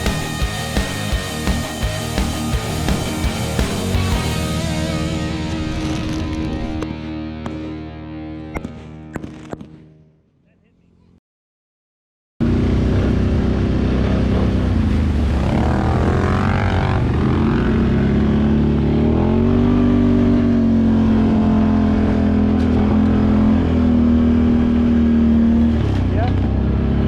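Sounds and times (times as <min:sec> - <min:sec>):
atv engine running: 0:12.4 - 0:27.0.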